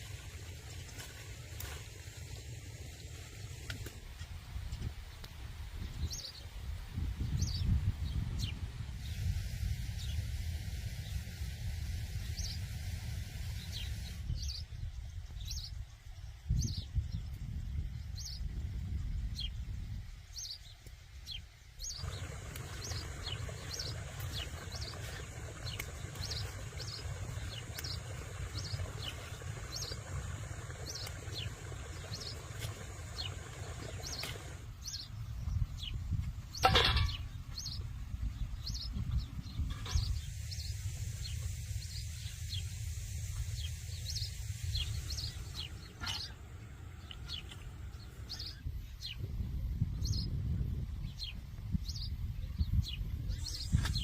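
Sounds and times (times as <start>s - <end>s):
small birds chirping: 7.2s - 50.4s, 51.0s - 54.0s
steady low rumble: 21.8s - 53.6s.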